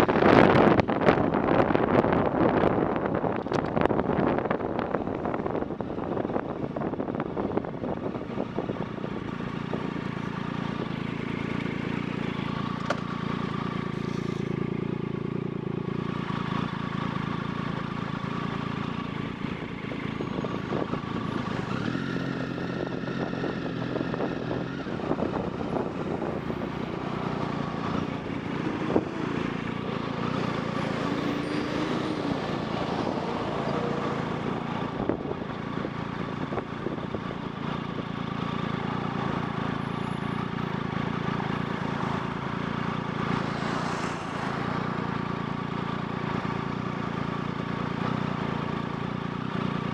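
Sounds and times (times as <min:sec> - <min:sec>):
engine humming: 0:00.0 - 0:49.9
road and wind noise: 0:00.0 - 0:49.9.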